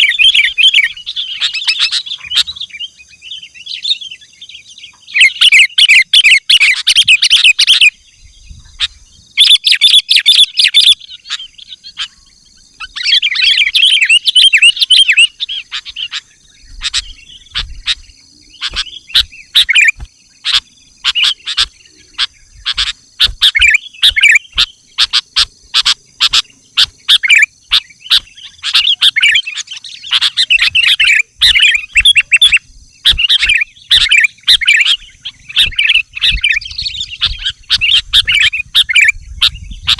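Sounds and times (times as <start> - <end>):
bulbul chattering song: 0.0 - 39.9
bird sharp chips: 16.8 - 39.1.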